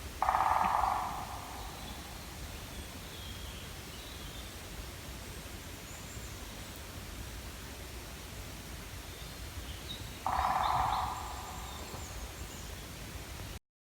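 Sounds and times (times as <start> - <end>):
woodpecker drumming on wood: 0.2 - 1.9, 10.2 - 12.1
faint high bird calls: 0.2 - 3.6, 9.9 - 12.8.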